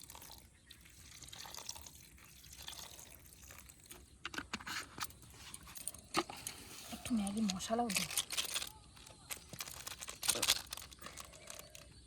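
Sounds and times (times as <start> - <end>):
liquid pouring and dribbling: 0.0 - 8.7
clicks and crackles: 3.9 - 12.0.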